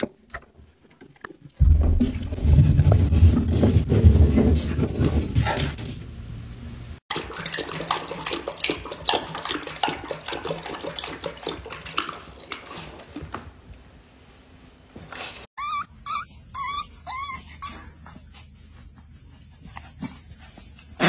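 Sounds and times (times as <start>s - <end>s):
dog lapping water from bowl: 7.1s - 13.3s.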